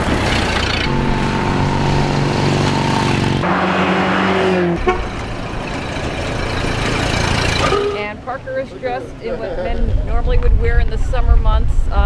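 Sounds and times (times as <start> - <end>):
car engines running: 0.0 - 8.4.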